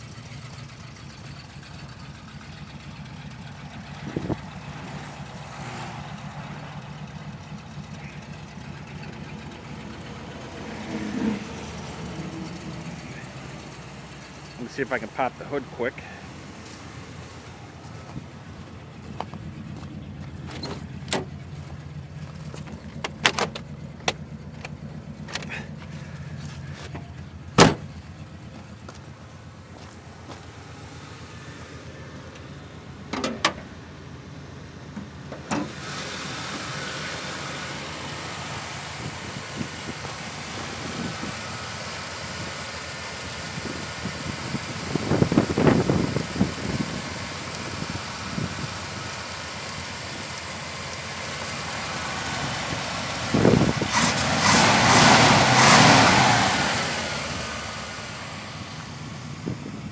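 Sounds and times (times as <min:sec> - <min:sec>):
car engine idling: 0:00.0 - 0:59.9
car hood clunks and knocks: 0:27.0 - 0:27.9.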